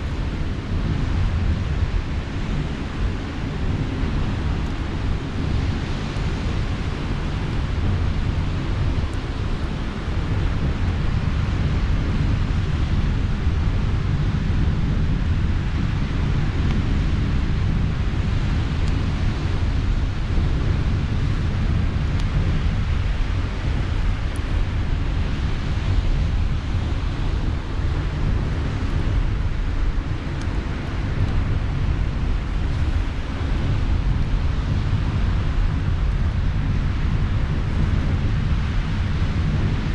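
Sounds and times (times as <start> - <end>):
campfire crackling: 0.0 - 39.8
wind on microphone: 0.0 - 39.9.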